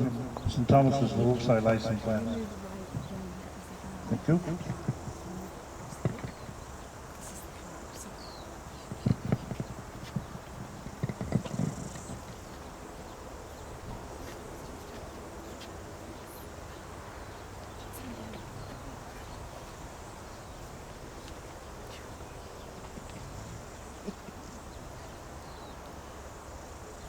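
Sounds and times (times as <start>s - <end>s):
faint murmur of voices: 0.0s - 12.0s
faint insect chirring: 0.0s - 27.0s.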